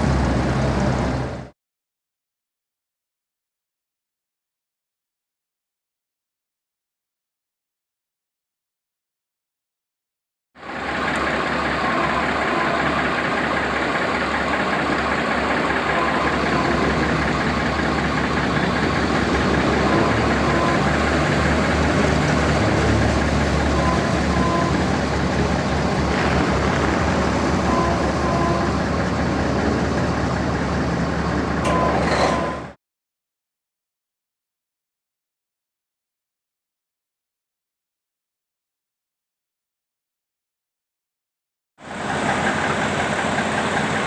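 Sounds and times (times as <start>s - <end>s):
heavy truck engine running: 0.0s - 1.5s, 10.6s - 32.8s, 41.8s - 44.0s.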